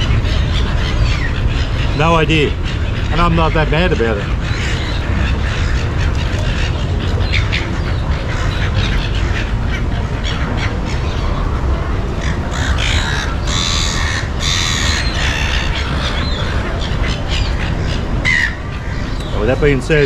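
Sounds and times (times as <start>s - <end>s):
city background rumble: 0.0s - 20.0s
crow-like bird squawks: 12.2s - 19.6s.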